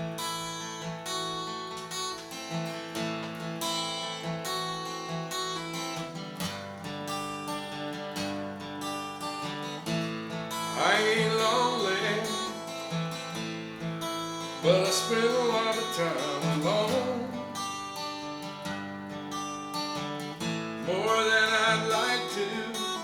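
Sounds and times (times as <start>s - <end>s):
acoustic guitar chords: 0.0s - 23.0s
person singing: 10.6s - 12.9s, 14.5s - 18.0s, 20.8s - 23.0s.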